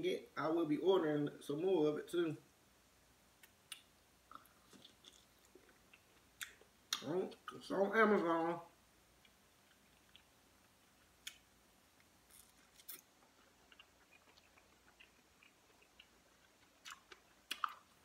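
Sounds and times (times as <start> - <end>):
person chewing food: 3.4 - 7.0, 9.2 - 18.0
wet mouth clicks and smacks: 3.4 - 7.1.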